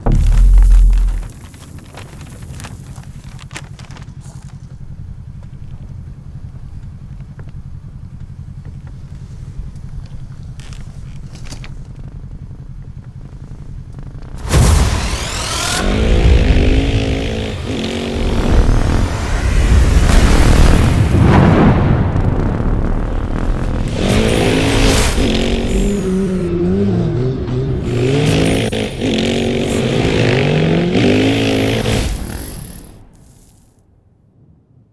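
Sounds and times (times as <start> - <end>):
vehicle engine running at low revs: 0.0 - 33.7.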